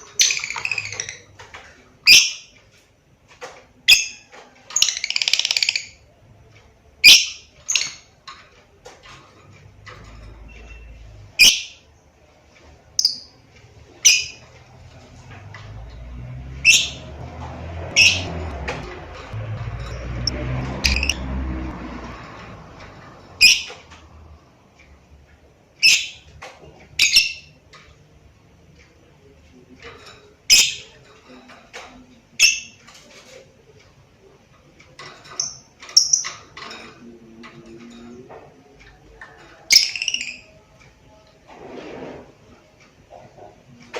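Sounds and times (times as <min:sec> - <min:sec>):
lovebird chirping: 0:00.0 - 0:01.3, 0:07.0 - 0:08.0, 0:10.7 - 0:11.8, 0:13.0 - 0:13.3, 0:14.0 - 0:14.4, 0:16.6 - 0:17.0, 0:18.0 - 0:18.3, 0:19.8 - 0:21.2, 0:23.4 - 0:23.8
lovebird shrill chirps: 0:20.8 - 0:21.2.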